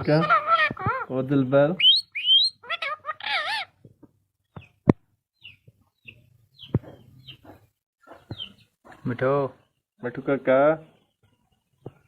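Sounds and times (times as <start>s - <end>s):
soft high chirps: 1.8s - 2.6s
parrot whistling and warbling: 1.8s - 3.7s.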